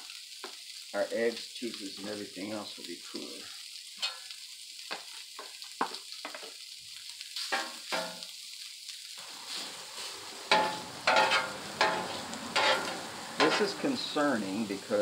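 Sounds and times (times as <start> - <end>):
meat sizzling on a griddle: 0.0 - 15.0
metal spatula scraping griddle: 9.5 - 14.1.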